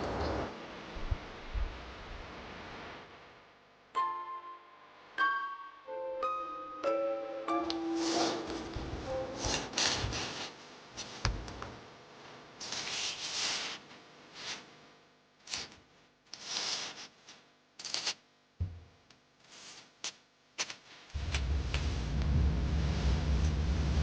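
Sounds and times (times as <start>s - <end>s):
rustling and scraping handling noise: 7.8s - 11.6s, 12.2s - 14.8s, 16.4s - 18.2s
soft knocks: 18.6s - 18.9s.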